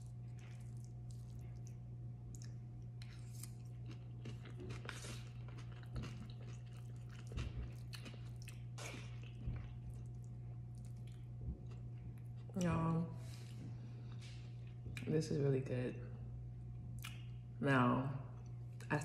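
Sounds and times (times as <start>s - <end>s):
close-miked chewing: 0.0s - 12.7s.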